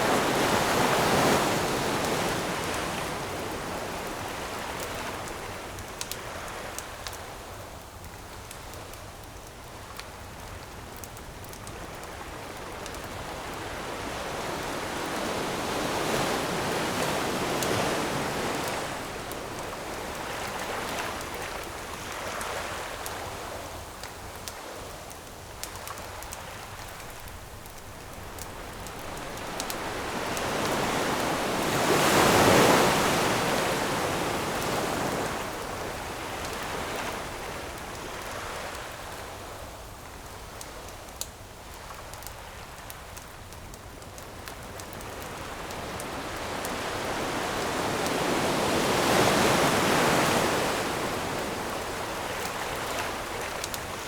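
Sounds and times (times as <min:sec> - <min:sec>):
ocean waves breaking on shore: 0:00.0 - 0:07.1, 0:11.8 - 0:23.8, 0:26.0 - 0:39.7, 0:44.5 - 0:54.0
campfire crackling: 0:00.0 - 0:54.0.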